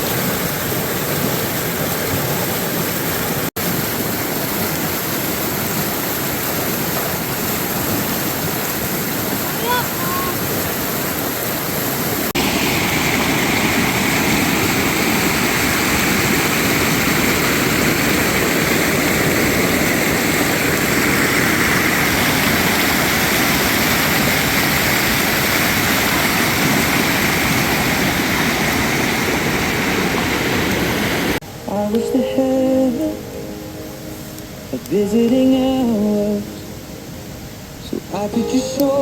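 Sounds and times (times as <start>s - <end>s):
rushing flowing water: 0.0s - 39.0s.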